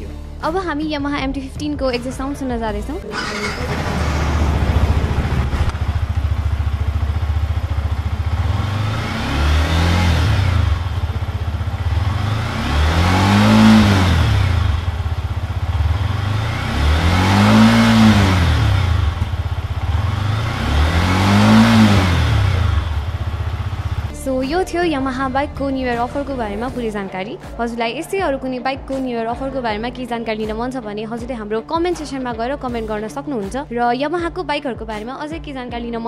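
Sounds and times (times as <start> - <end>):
motorcycle engine idling and revving: 0.0 - 27.6.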